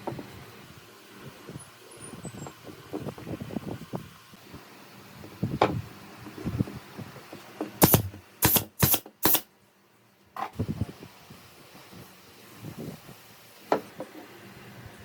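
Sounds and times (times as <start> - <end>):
sharp clicks: 7.8 - 9.5.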